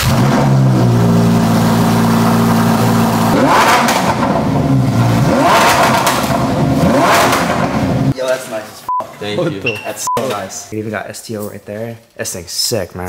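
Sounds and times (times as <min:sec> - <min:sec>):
car engine idling high: 0:00.0 - 0:08.1.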